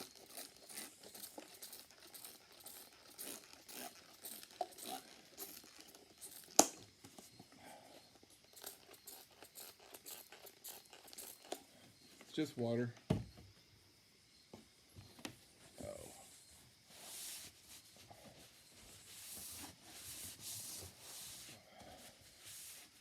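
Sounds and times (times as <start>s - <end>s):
spray bottle squirts: 0.0s - 6.8s, 8.5s - 11.6s.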